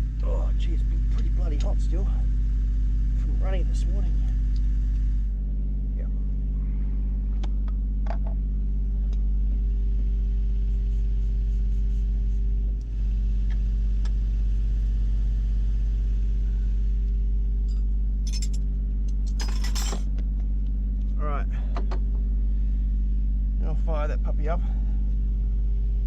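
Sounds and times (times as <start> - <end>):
metallic clatter: 18.3 - 18.6, 19.3 - 20.0.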